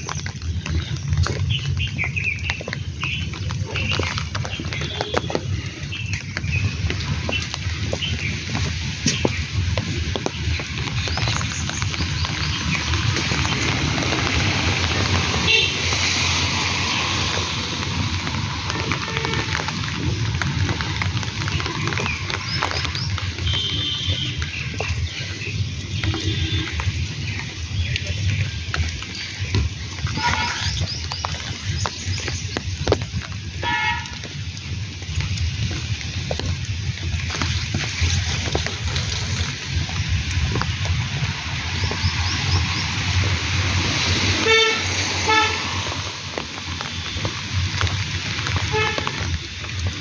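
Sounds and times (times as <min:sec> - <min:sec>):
birds chirping: 0:00.0 - 0:50.0
rain: 0:00.0 - 0:50.0
wind: 0:00.0 - 0:50.0
vehicle horn tooting: 0:15.4 - 0:15.9, 0:19.0 - 0:19.8, 0:23.4 - 0:24.4, 0:26.1 - 0:26.8, 0:33.6 - 0:34.2, 0:44.4 - 0:45.6, 0:48.7 - 0:49.2.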